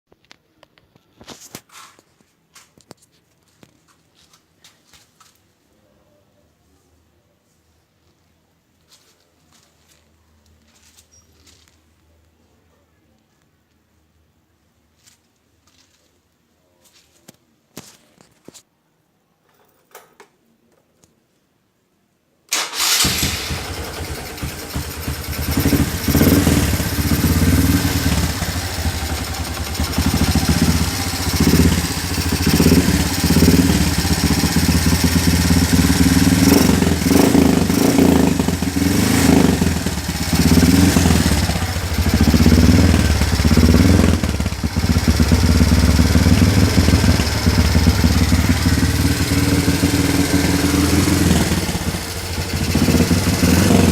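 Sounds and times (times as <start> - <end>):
motorcycle engine revving: 22.6 - 53.9.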